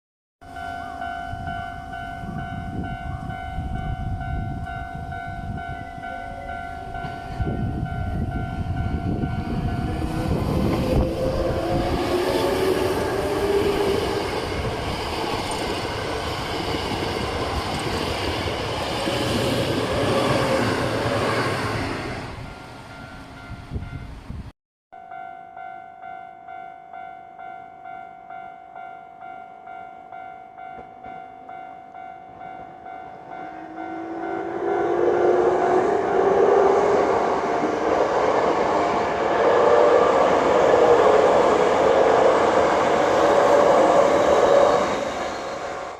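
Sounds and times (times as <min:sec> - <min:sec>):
level crossing warning bell: 0:00.4 - 0:20.9, 0:24.9 - 0:38.0
train wheel and rail noise: 0:00.4 - 0:24.5, 0:29.7 - 0:45.9
train motor whine: 0:07.0 - 0:22.8, 0:33.2 - 0:45.9.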